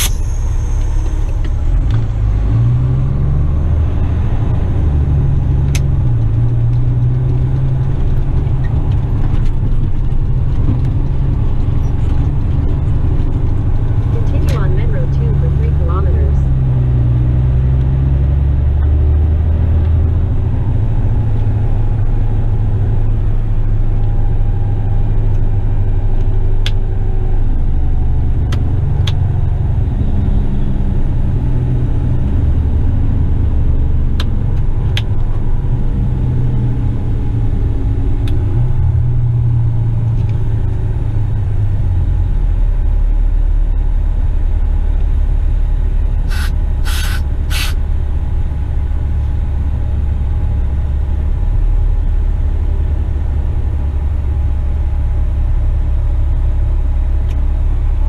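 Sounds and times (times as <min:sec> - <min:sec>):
truck diesel engine rumbling: 0:00.0 - 0:58.0
short air hisses: 0:46.3 - 0:47.8.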